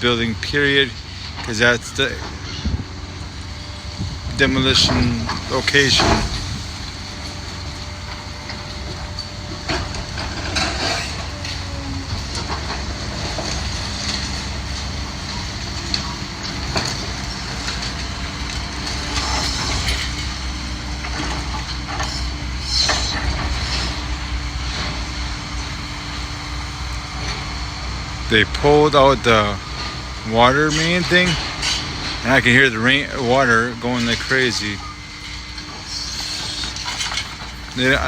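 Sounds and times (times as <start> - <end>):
demolition machine engine rumble: 0.0 - 38.0
debris crunching and clanking: 4.6 - 26.3, 28.3 - 38.0.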